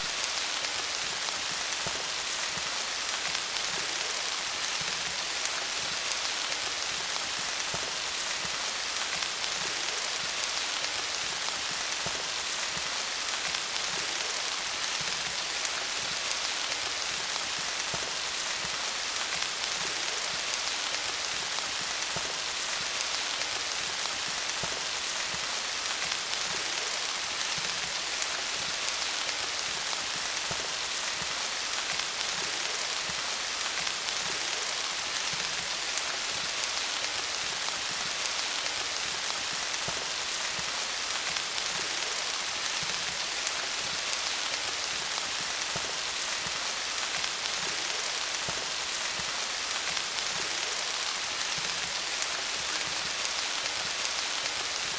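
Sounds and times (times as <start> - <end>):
rain pattering on leaves: 0.0 - 54.9.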